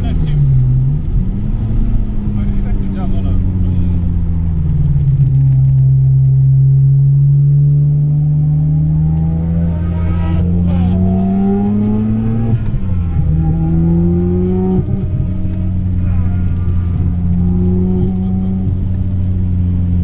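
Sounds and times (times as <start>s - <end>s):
rotary engine accelerating: 0.0s - 20.0s
gear upshift: 7.4s - 20.0s.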